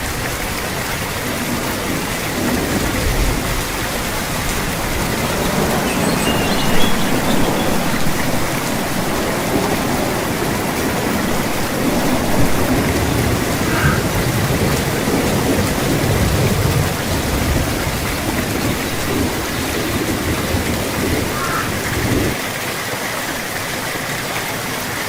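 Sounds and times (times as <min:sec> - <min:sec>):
heavy rain falling: 0:00.0 - 0:25.0
distant thunder rumbling: 0:06.6 - 0:22.4.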